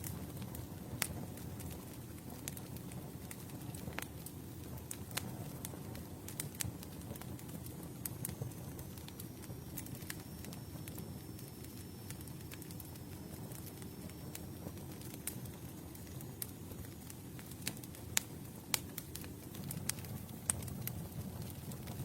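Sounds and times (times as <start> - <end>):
campfire crackling: 0.0 - 22.0
fire pops and snaps: 0.0 - 22.0.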